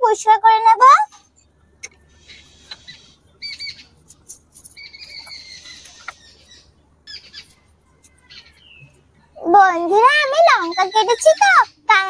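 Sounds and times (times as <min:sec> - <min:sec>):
high squeaky bird-like calls: 0:01.0 - 0:09.0.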